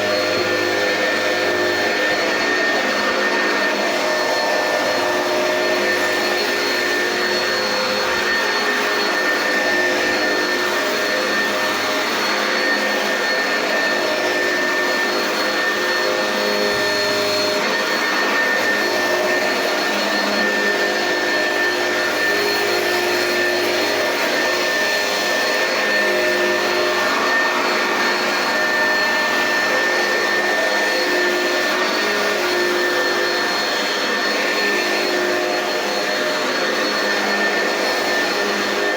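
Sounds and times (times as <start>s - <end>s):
upright vacuum cleaner running: 0.0s - 38.9s.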